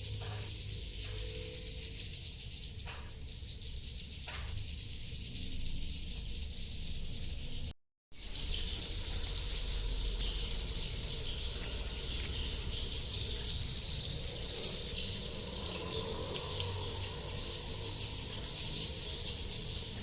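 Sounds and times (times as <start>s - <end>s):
swiftlets chirping: 8.2s - 20.0s.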